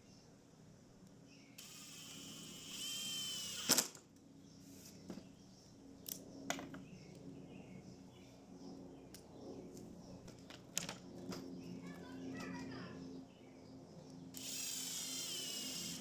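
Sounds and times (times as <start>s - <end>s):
motorized hand tool whirring: 1.6s - 4.0s, 14.3s - 16.0s.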